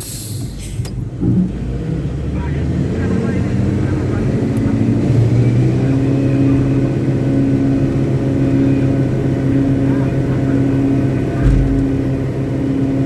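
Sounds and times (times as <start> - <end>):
diesel engine running: 0.0 - 13.0
low thump: 11.4 - 12.3.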